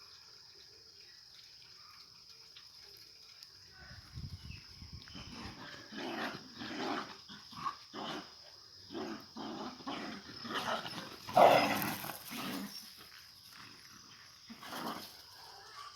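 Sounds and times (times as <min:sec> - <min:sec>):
dog growling and barking: 0:05.3 - 0:12.8.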